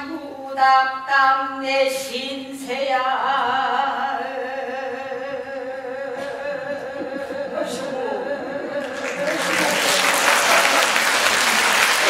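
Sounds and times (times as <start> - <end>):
person singing long wavering note: 4.0 - 9.4.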